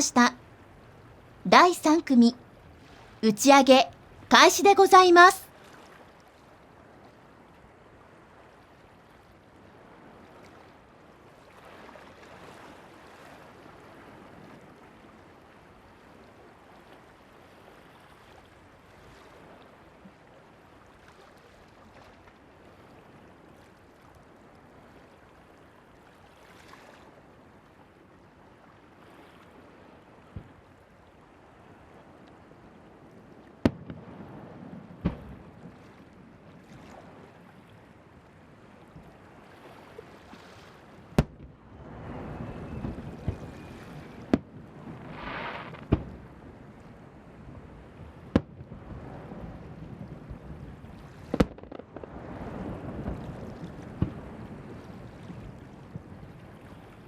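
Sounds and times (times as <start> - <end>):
wind: 0.0 - 57.0
surf: 39.0 - 47.0.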